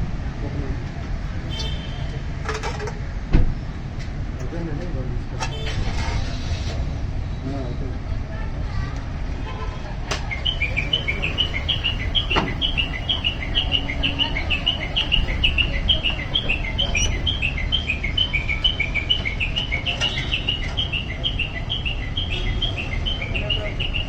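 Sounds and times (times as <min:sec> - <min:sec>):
small birds chirping: 0:10.3 - 0:24.0.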